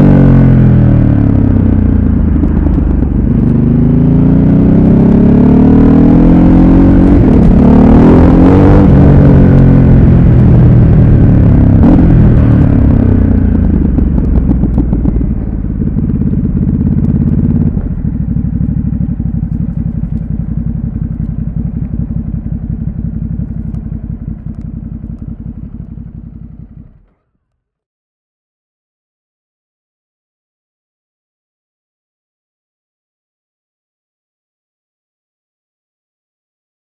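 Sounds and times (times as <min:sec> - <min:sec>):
motorcycle engine revs falling: 0:00.0 - 0:27.3
motorcycle engine idling: 0:00.9 - 0:03.9, 0:09.5 - 0:27.3.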